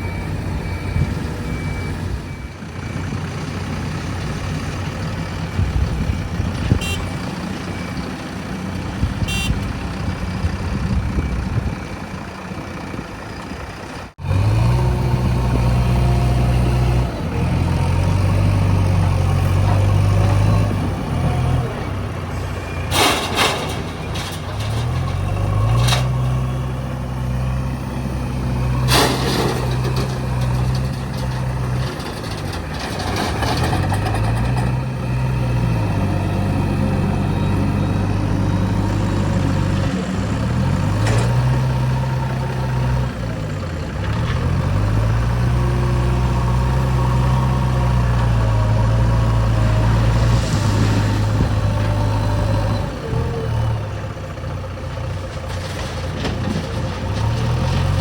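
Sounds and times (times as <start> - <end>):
backhoe diesel engine revving: 0.0 - 58.0.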